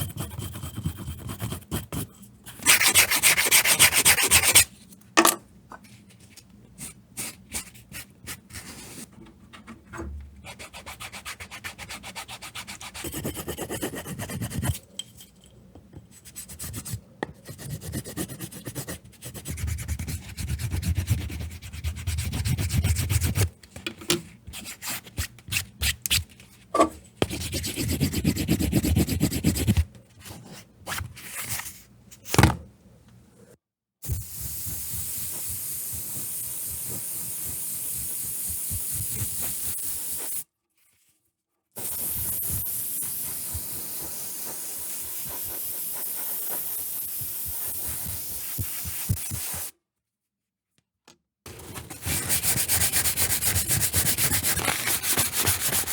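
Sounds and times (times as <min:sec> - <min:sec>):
sanding leather by hand: 0:02.6 - 0:04.7, 0:41.8 - 0:49.7, 0:51.7 - 0:55.9.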